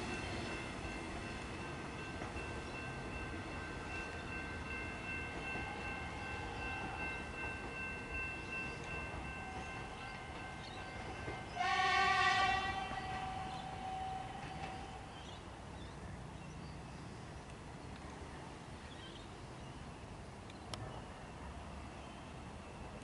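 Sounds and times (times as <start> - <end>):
train horn blast: 11.5 - 15.1.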